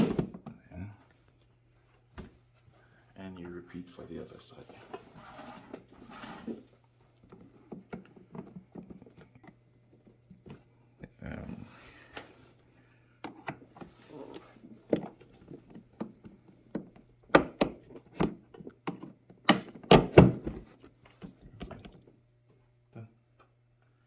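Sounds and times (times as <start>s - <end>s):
toy car seat knocking into fittings: 16.8s - 20.6s.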